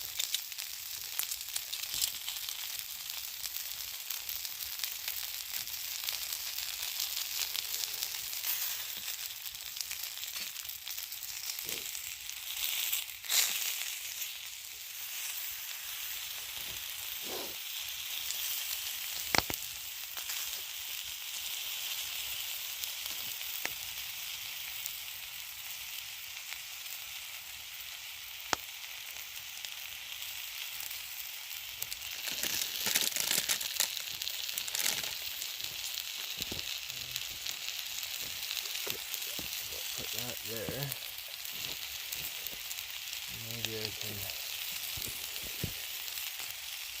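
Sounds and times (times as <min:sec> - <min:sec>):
food sizzling on hot rock: 0:00.0 - 0:47.0
sharp pops: 0:19.2 - 0:19.6.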